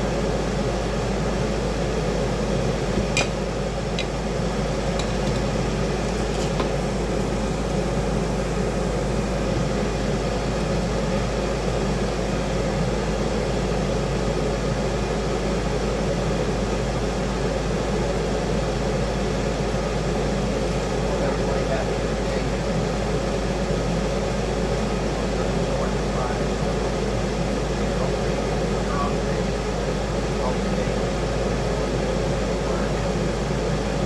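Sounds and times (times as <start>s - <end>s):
kitchen fan running: 0.0s - 34.0s.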